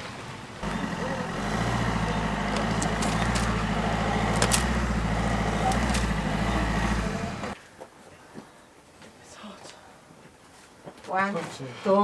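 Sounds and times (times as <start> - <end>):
engine humming: 0.0 - 7.6
light clicks and knocks: 1.8 - 6.7.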